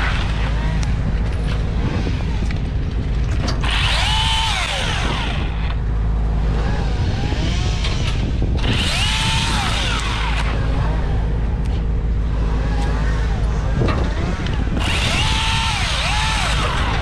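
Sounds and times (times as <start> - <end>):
low rumble: 0.0 - 17.0
chainsaw revving: 3.6 - 5.8, 6.4 - 11.4, 12.5 - 17.0.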